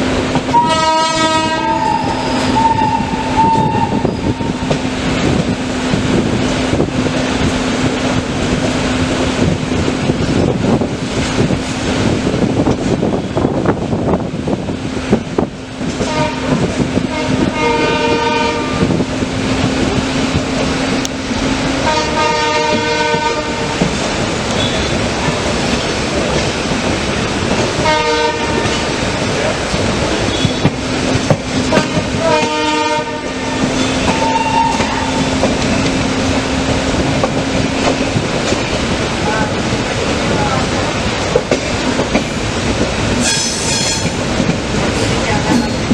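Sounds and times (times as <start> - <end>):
train rumbling with wheel knocks: 0.0 - 45.9
locomotive horn blast: 0.5 - 4.7, 16.0 - 19.0, 21.8 - 23.7, 24.5 - 25.1, 27.8 - 28.9, 30.2 - 30.9, 31.6 - 35.5, 43.2 - 44.2.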